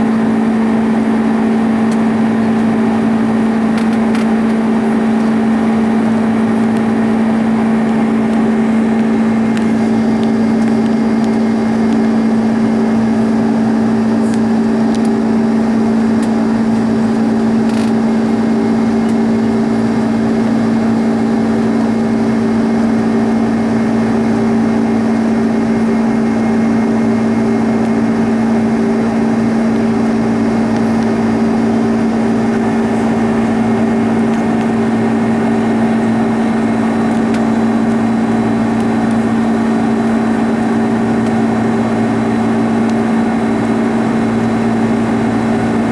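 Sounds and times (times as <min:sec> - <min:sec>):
airliner cabin drone: 0:00.0 - 0:45.9
constant low hum: 0:00.0 - 0:45.9.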